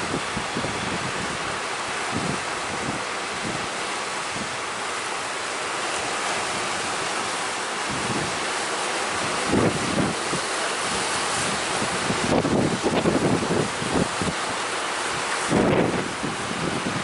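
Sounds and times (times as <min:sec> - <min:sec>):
wind buffeting microphone: 0:00.0 - 0:05.1, 0:06.2 - 0:17.0
sea surf washing in: 0:00.0 - 0:17.0.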